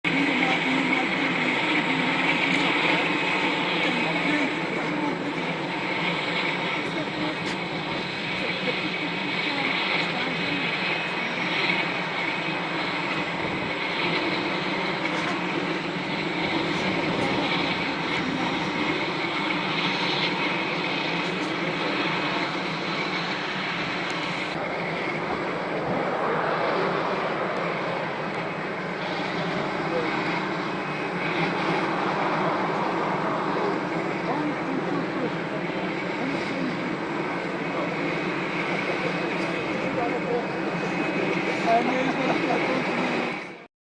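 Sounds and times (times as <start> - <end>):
jet engines running with high whine: 0.0 - 43.7.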